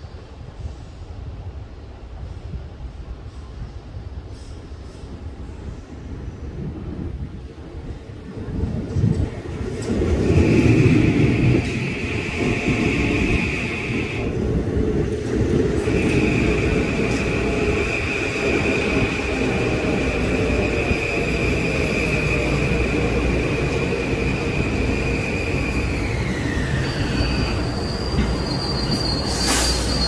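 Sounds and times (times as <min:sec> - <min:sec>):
train cars rumbling slowly: 0:00.2 - 0:30.0
high squeal: 0:15.9 - 0:30.0.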